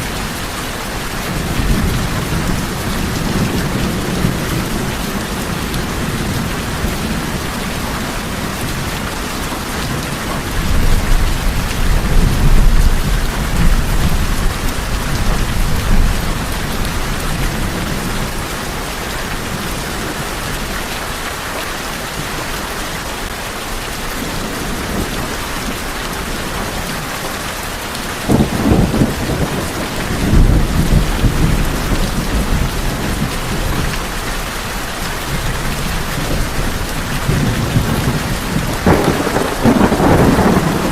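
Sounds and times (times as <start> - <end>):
heavy rain on a tin roof: 0.0 - 40.9
low rolls of thunder: 28.3 - 33.8, 37.2 - 40.9.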